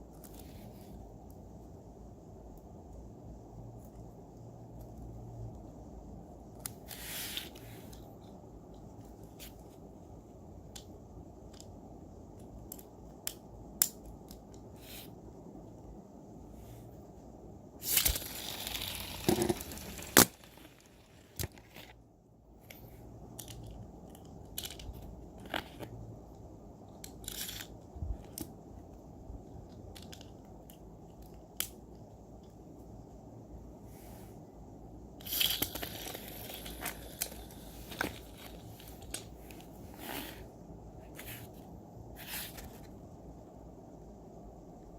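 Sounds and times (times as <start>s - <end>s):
plastic packaging crinkling and tearing: 17.9s - 21.9s.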